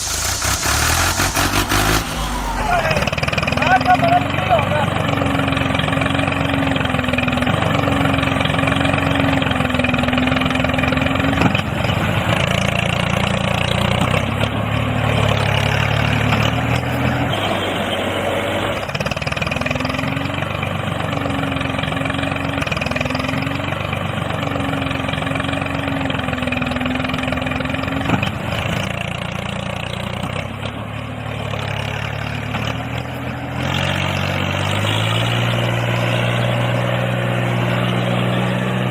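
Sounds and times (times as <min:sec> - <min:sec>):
motor running with wavering pitch: 0:00.0 - 0:08.9.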